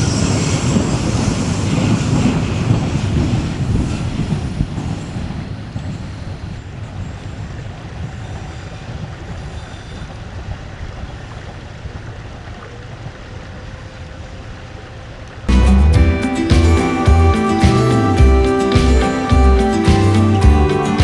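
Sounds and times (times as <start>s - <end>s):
train rumbling past: 0.0s - 21.0s
wind buffeting microphone: 0.0s - 21.0s.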